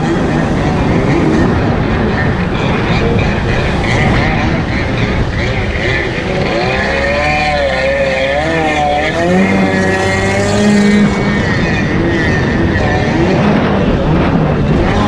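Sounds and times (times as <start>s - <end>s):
jet ski engine revving: 0.0s - 15.0s
wind: 0.0s - 15.0s.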